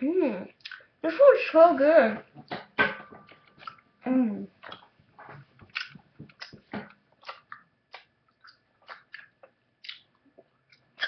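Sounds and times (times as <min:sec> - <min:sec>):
person chewing candy: 0:03.3 - 0:03.9, 0:04.6 - 0:05.0, 0:05.6 - 0:11.0.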